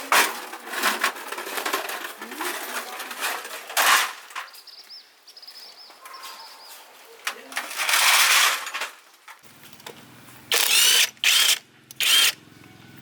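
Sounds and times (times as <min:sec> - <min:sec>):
bird chirping: 0:04.5 - 0:06.9.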